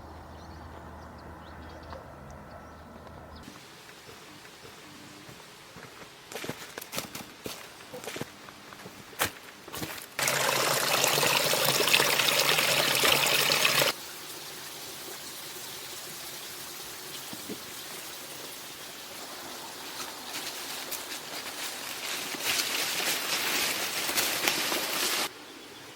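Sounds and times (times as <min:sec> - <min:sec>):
water pouring: 0:10.2 - 0:19.6.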